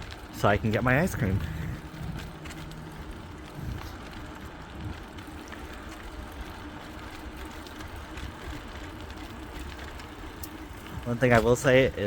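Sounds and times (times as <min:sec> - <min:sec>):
wind rumble on microphone: 0:00.0 - 0:11.2
bike ticks and rattles: 0:00.0 - 0:12.0.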